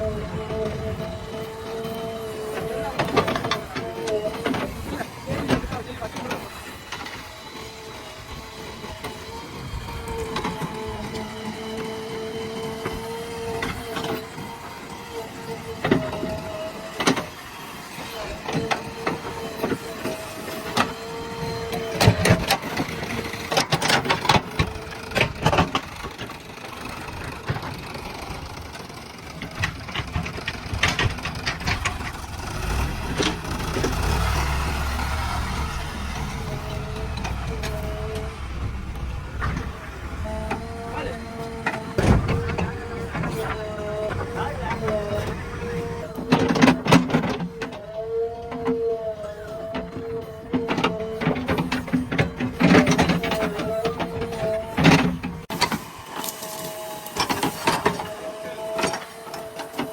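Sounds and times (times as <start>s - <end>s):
diesel engine running: 0.0s - 59.9s
steady engine whine: 0.0s - 59.9s.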